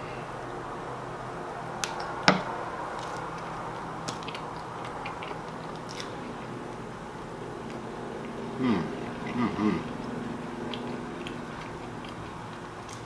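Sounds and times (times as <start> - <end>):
person chewing sandwich: 2.9 - 13.0.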